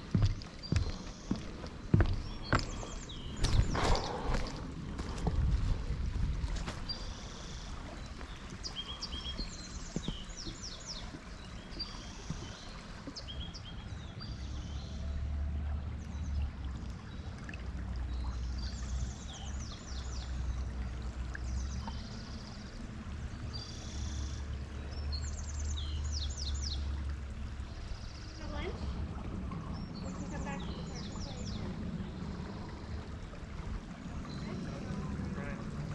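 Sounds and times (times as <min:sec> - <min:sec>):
songbird singing: 0:00.0 - 0:04.7, 0:06.8 - 0:35.9
low rumble: 0:26.9 - 0:35.9.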